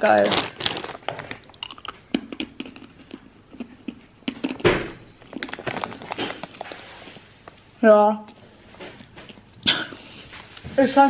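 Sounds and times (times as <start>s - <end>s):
chewing crunchy candy: 0.0s - 7.0s
thump: 4.6s - 5.0s.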